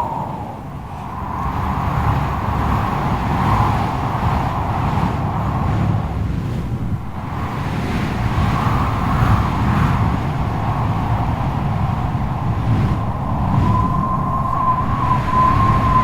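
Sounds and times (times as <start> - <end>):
steady whistling tone: 0.0 - 2.1, 13.0 - 16.0
strong gusting wind: 0.0 - 16.0.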